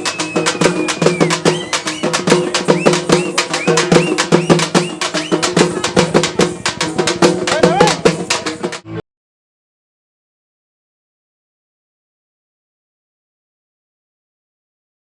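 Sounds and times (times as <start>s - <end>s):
fast folk dance percussion: 0.0s - 9.0s.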